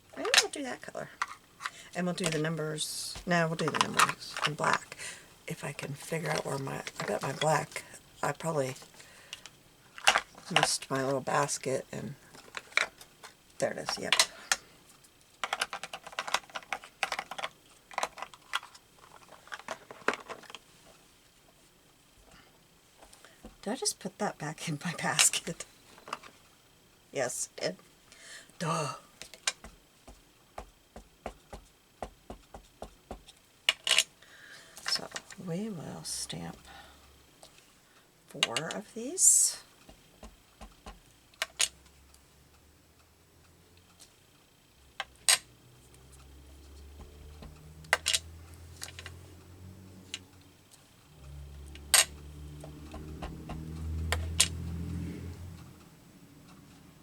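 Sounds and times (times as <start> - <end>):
low steady hum: 0.0 - 57.0
rubber stamp tapping on paper: 29.6 - 33.3, 39.9 - 41.0, 47.0 - 48.1, 52.6 - 54.3.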